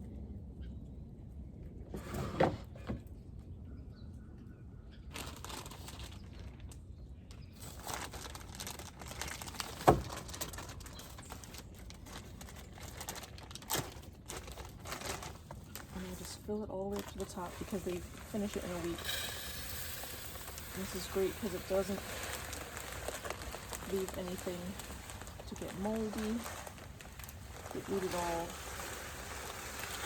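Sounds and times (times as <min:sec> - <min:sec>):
crinkling bag: 0:05.1 - 0:30.0
seed pouring rustle: 0:07.6 - 0:30.0.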